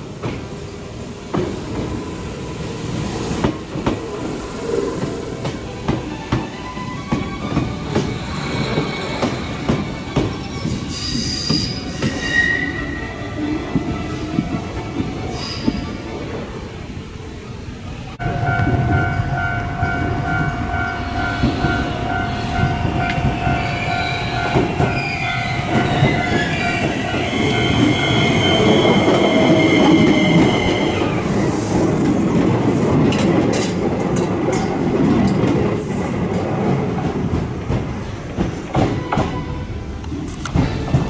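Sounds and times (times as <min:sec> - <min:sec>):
train wheel rumble: 0:00.0 - 0:12.3, 0:13.4 - 0:41.0
crossing warning bell dinging: 0:18.2 - 0:30.8.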